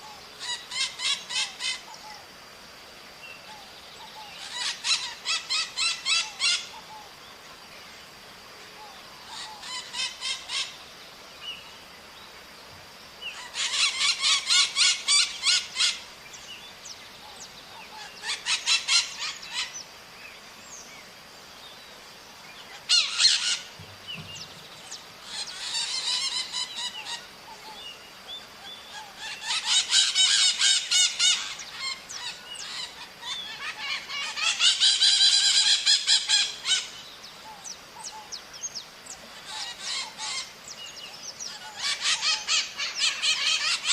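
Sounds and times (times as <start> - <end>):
parrots screeching: 0.4 - 1.8, 4.4 - 6.7, 9.3 - 10.7, 13.4 - 16.0, 18.0 - 19.7, 22.8 - 23.7, 25.2 - 27.2, 28.9 - 36.9, 39.4 - 40.5, 41.5 - 43.9.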